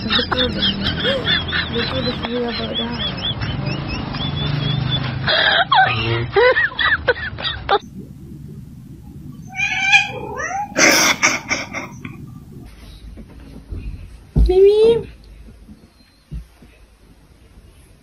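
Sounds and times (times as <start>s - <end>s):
cat meowing: 9.3s - 12.0s
puppy yelping: 9.4s - 12.1s.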